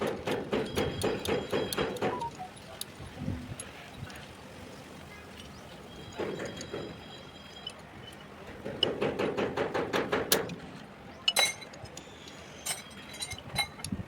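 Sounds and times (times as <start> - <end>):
metal tools clinking: 12.6 - 13.8.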